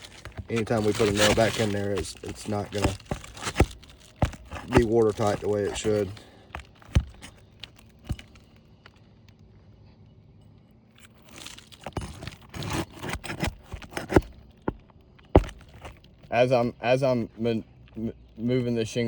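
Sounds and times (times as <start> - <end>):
asphalt shingle crackling and tearing: 0.0 - 9.0, 11.0 - 16.6.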